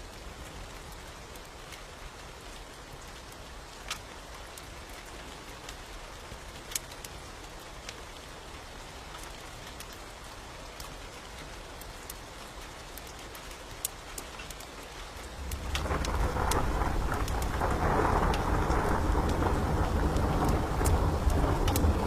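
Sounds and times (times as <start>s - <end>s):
rain hiss: 0.0s - 22.0s
wood fire crackling pops: 15.3s - 22.0s.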